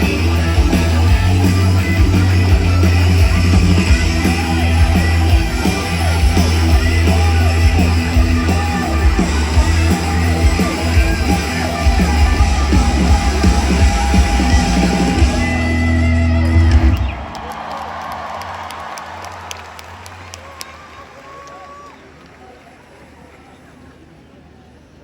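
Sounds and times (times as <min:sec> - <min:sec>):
live rock band playing: 0:00.0 - 0:17.4
crowd voices: 0:00.0 - 0:25.0.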